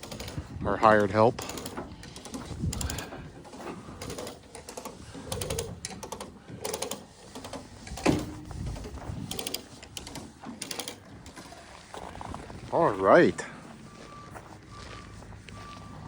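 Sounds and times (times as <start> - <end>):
ratchet clicking: 0.0 - 11.5.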